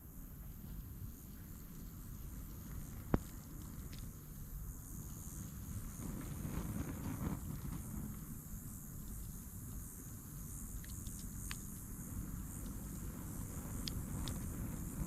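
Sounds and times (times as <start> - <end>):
constant high hiss: 0.0 - 15.0
small sharp clicks: 10.8 - 11.9, 13.8 - 14.5.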